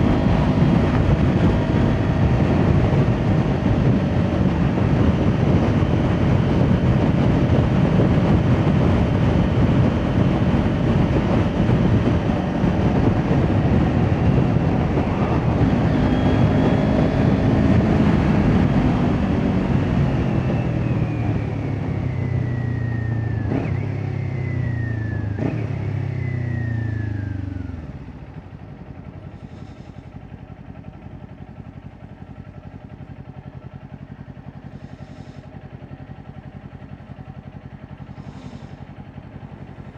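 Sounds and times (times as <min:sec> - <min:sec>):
wind noise: 0:00.0 - 0:22.0
motorcycle engine: 0:00.0 - 0:39.9.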